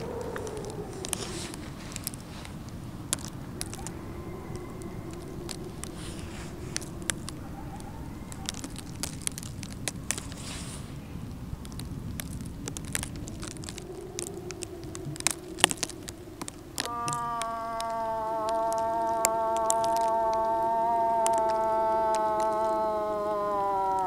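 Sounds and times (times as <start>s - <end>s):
rustling of backpacks and clothing: 0.0s - 17.0s
low steady rumble: 0.0s - 22.0s
clicks and crackles: 0.0s - 24.0s.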